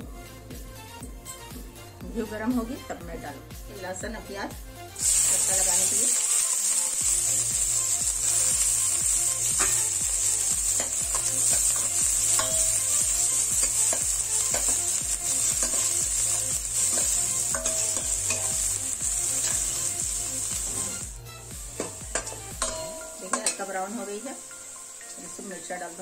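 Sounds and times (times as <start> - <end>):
onion and garlic sizzling: 4.9 - 26.0
metal ladle scraping pan: 16.8 - 18.6.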